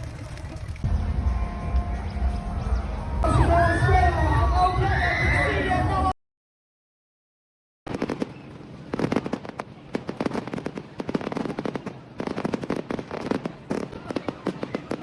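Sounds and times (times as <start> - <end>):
fireworks crackling and banging: 7.9 - 15.0.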